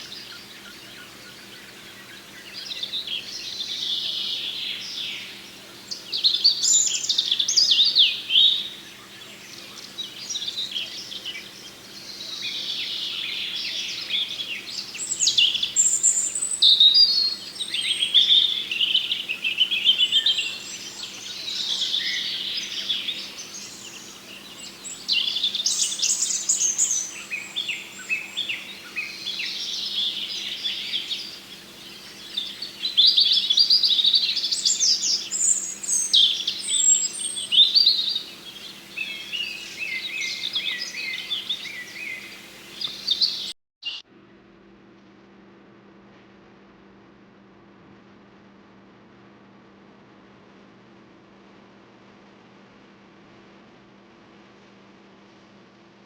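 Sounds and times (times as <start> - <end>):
songbirds chirping: 0.0 - 44.0
faint steady hum: 0.0 - 56.0.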